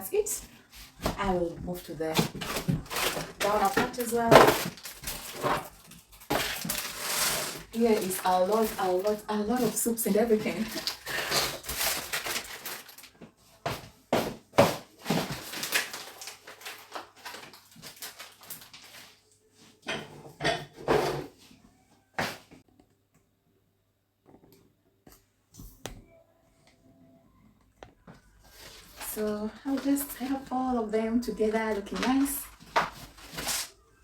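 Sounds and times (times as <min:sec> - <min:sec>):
packets rustling: 0:02.2 - 0:13.2, 0:14.9 - 0:19.2, 0:31.7 - 0:33.8.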